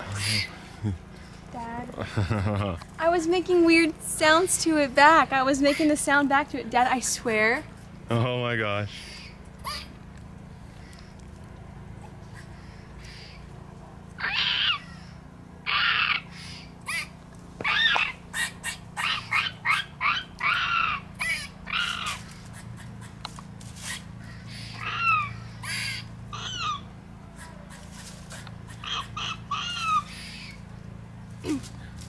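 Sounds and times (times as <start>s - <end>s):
squirrel alarm calls: 0.0s - 1.4s, 5.0s - 6.4s, 8.8s - 11.4s, 12.0s - 13.6s, 14.2s - 31.6s.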